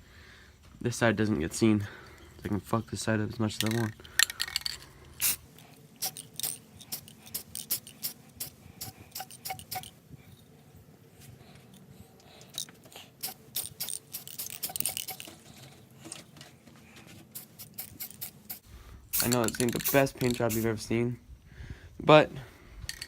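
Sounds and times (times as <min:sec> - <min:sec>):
light metallic clicks and clinks: 0:19.2 - 0:20.7.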